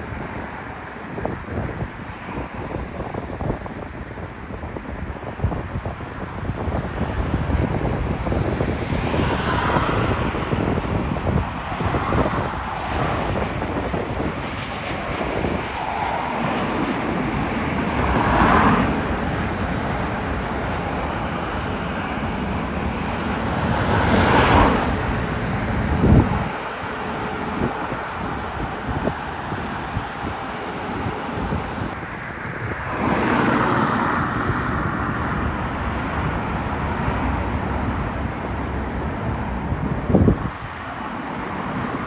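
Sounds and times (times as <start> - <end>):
wind buffeting microphone: 0.0 - 42.0
wind whooshes: 0.0 - 42.0.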